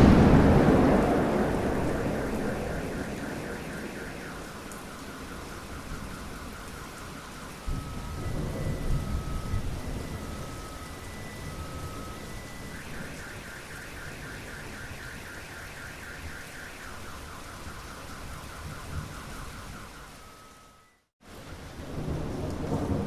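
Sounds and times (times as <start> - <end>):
car alarm warbling: 0.0 - 21.1
rain: 0.0 - 23.0.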